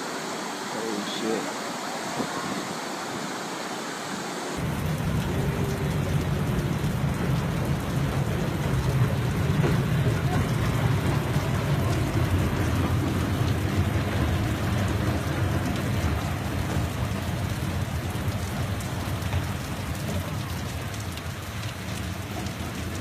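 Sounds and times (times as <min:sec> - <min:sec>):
heavy rain falling: 0:00.0 - 0:23.0
deep rumble: 0:04.6 - 0:20.4.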